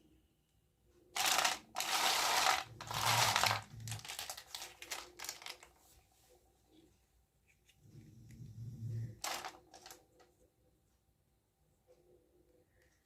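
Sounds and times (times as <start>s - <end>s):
packaging crackles: 1.2s - 5.8s, 9.2s - 10.0s
packaging rustling and crinkling: 1.2s - 5.8s, 9.2s - 10.3s.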